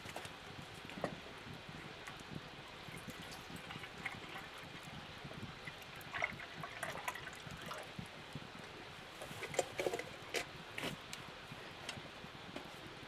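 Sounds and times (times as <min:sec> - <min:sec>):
water trickling and dripping: 0:01.9 - 0:08.7.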